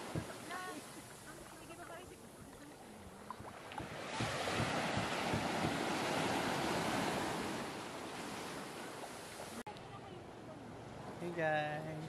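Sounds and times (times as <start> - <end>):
surf breaking on a beach: 0.0 - 2.6, 3.4 - 9.6
wind buffeting the microphone: 0.0 - 8.8.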